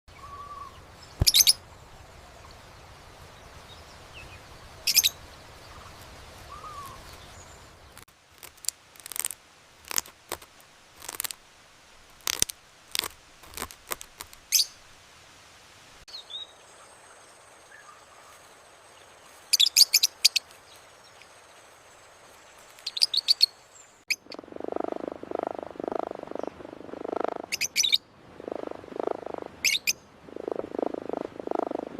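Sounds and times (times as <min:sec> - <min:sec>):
low pulsing bird call: 0:00.1 - 0:01.6, 0:06.5 - 0:07.1, 0:24.1 - 0:31.9
small birds chirping: 0:00.1 - 0:08.1, 0:16.1 - 0:31.9.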